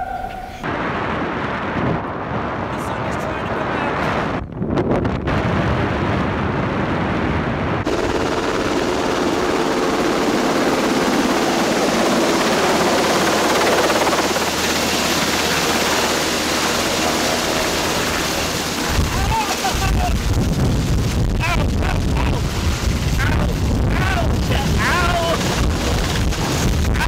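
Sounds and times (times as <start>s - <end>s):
wind blasting microphone: 0.0s - 27.0s
helicopter rotor chop: 7.8s - 27.0s.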